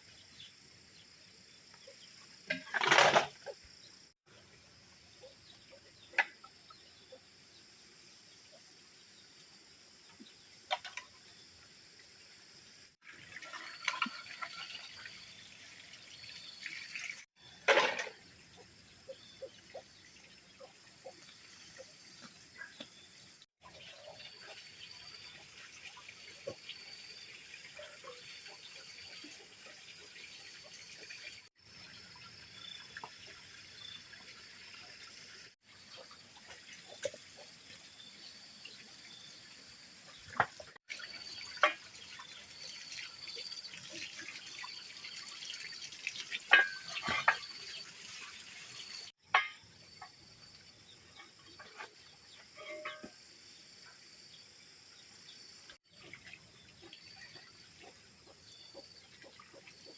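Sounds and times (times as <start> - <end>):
water running and trickling: 9.2 - 59.9
knocks and splashes: 40.2 - 48.4.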